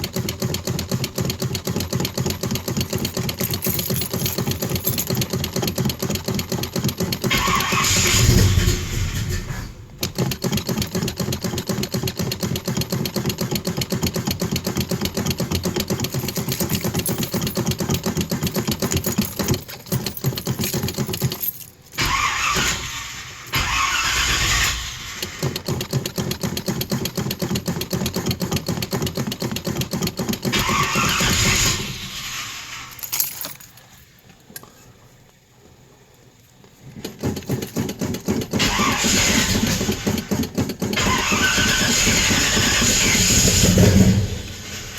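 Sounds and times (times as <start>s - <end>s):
car engine cranking on starter: 0.1s - 27.2s, 29.6s - 33.5s, 36.9s - 44.9s.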